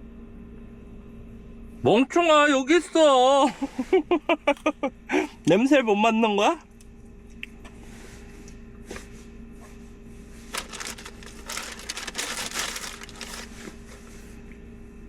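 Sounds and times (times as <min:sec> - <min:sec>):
faint steady hum: 0:00.0 - 0:15.0
crinkly rustling and clicks: 0:10.5 - 0:14.0.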